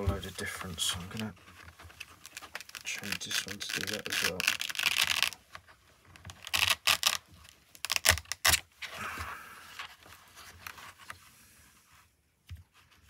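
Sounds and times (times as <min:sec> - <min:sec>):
soft scraping rustle: 0:00.0 - 0:04.4
short rasps of handling: 0:00.5 - 0:05.4.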